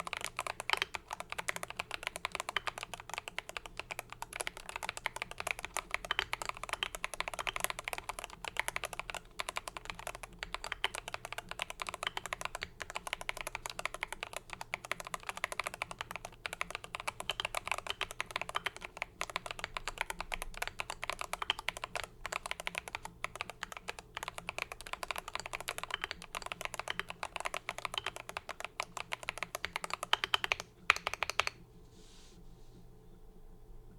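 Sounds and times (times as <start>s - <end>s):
typing on mechanical keyboard: 0.0s - 31.6s.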